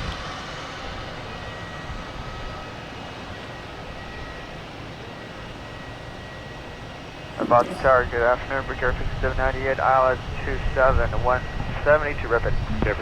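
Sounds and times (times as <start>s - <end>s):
distant jet engines rumbling: 6.9s - 13.0s.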